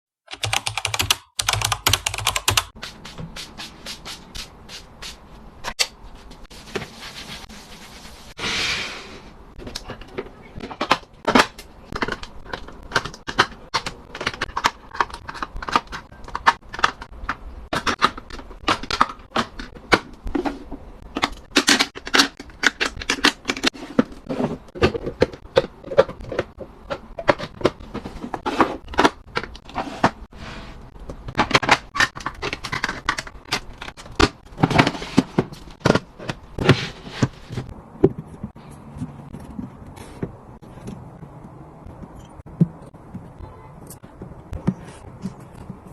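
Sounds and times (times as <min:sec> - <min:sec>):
items clicking and knocking: 0:09.5 - 0:45.9.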